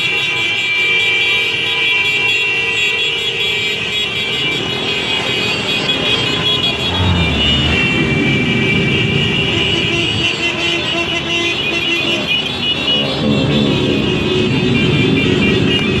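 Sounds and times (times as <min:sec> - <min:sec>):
road noise: 0:04.5 - 0:16.0
deep low rumble: 0:06.6 - 0:10.5.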